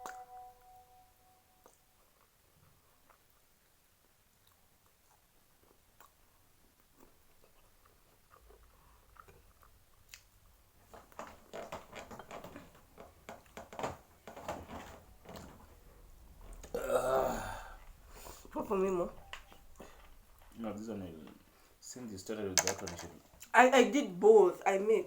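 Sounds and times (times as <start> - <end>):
person chewing crunchy food: 4.3 - 10.6.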